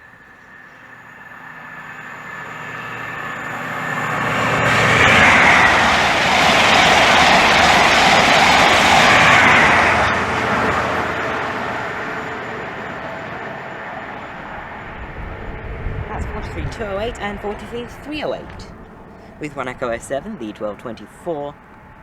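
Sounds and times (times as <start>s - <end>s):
diesel train passing: 0.0s - 22.0s.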